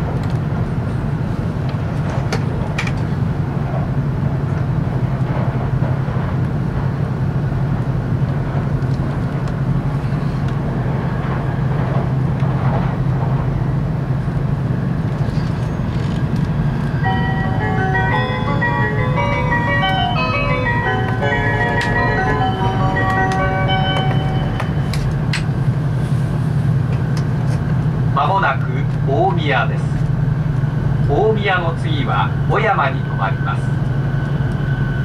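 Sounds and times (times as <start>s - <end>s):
train cabin rumble and hiss: 0.0s - 35.0s
announcement chime melody: 17.0s - 25.0s.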